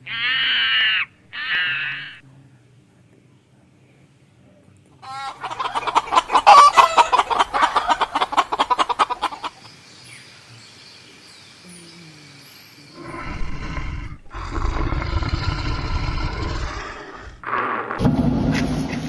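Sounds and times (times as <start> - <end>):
chicken clucking: 5.0 - 9.6
large animal deep call: 13.0 - 18.1.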